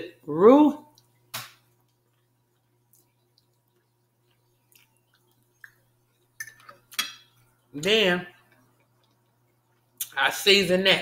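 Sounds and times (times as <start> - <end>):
faint steady hum: 0.0 - 11.0
mouth chewing rice: 1.8 - 6.4.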